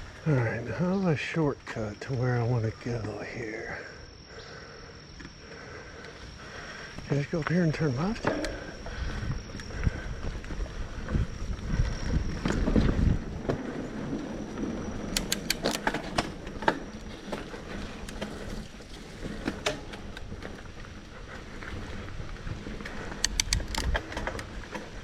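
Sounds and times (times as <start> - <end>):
bike tyre rumble on dirt: 0.0 - 25.0
bike clicks and rattles: 5.2 - 25.0
wind on microphone: 8.2 - 15.3.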